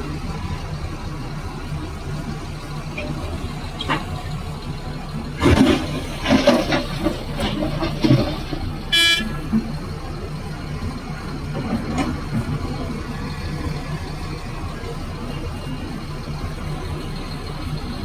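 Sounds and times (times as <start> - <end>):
heavy vehicle engine running: 0.0 - 18.0
vehicle horn toot: 8.9 - 9.5.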